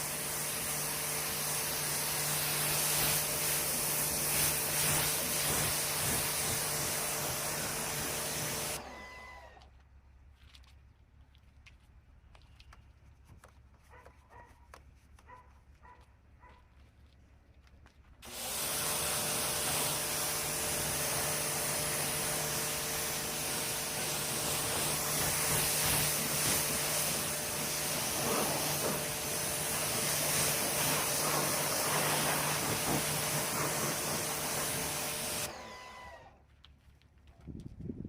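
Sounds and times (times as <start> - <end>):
electric blower rushing air: 0.0 - 9.6, 18.2 - 36.3.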